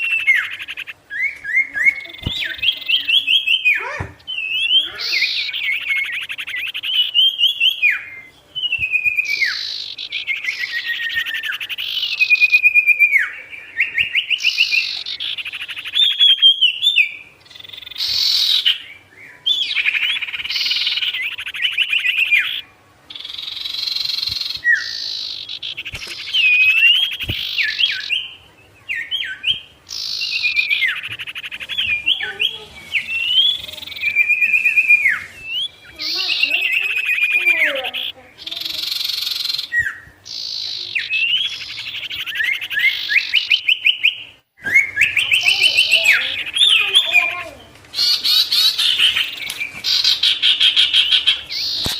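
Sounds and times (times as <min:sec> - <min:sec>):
songbird trilling and whistling: 0:00.0 - 0:51.9.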